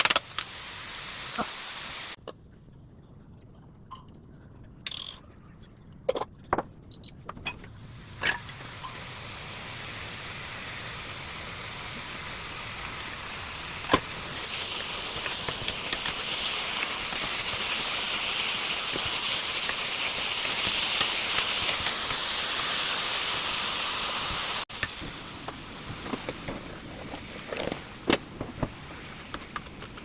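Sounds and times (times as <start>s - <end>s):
food sizzling in a frying pan: 0.0s - 2.2s, 8.4s - 25.4s.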